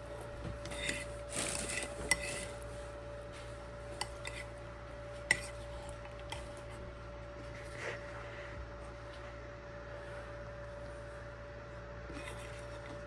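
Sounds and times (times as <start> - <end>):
utensils scraping and clinking on dishes: 0.2 - 2.8, 3.9 - 4.6, 5.3 - 6.4, 12.1 - 13.0.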